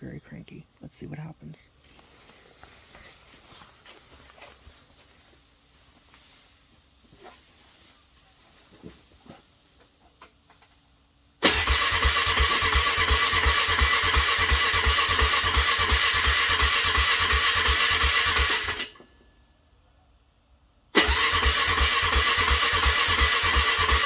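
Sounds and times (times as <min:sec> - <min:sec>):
car engine cranking: 0:11.4 - 0:19.0, 0:21.0 - 0:24.0.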